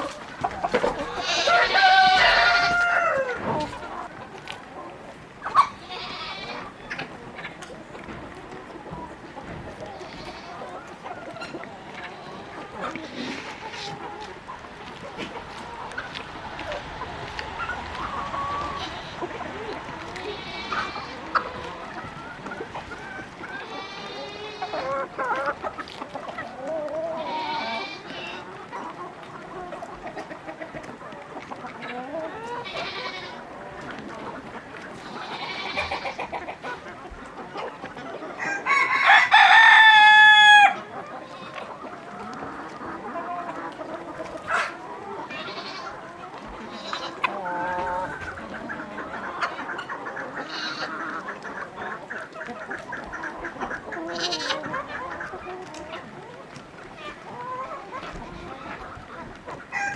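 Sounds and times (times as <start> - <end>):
chickens clucking: 0.0 - 59.9
rooster crowing: 1.2 - 3.5, 38.4 - 40.8.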